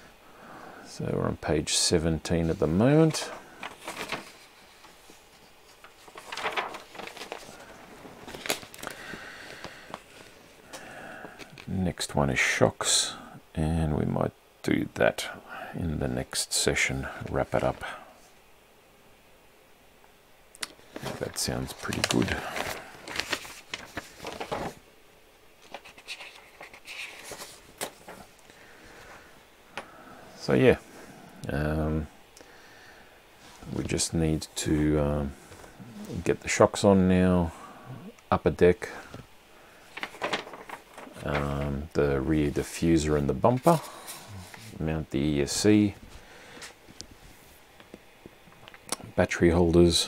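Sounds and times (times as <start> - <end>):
rustling of parts and paper: 2.2 - 11.7, 20.7 - 24.9, 25.6 - 29.2, 39.1 - 48.9.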